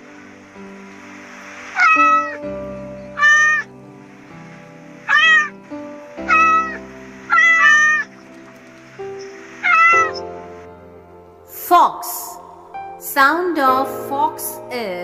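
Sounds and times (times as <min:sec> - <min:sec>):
background music: 0:00.0 - 0:15.0
cat meowing: 0:01.8 - 0:02.4, 0:03.2 - 0:03.7, 0:05.1 - 0:05.5, 0:06.3 - 0:08.1, 0:09.6 - 0:10.2.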